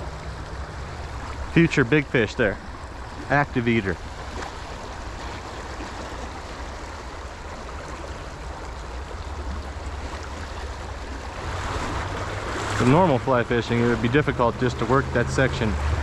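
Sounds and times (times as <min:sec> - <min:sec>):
low rumbling of current: 0:00.0 - 0:16.0
river water rushing over rocks: 0:00.0 - 0:16.0.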